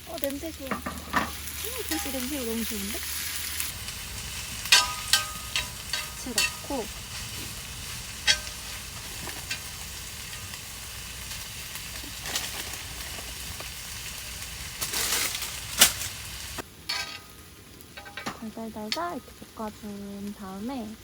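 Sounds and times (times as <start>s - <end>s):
squid and onion sizzling in a pan: 0.0s - 21.0s
utensil scraping against pan: 0.7s - 2.4s, 3.2s - 13.7s.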